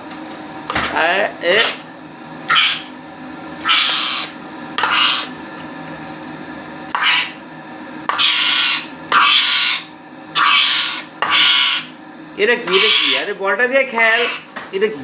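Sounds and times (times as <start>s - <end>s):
parrot squawking: 1.4s - 1.8s, 2.5s - 3.0s, 3.6s - 5.4s, 6.9s - 7.4s, 8.1s - 12.0s, 12.6s - 14.5s.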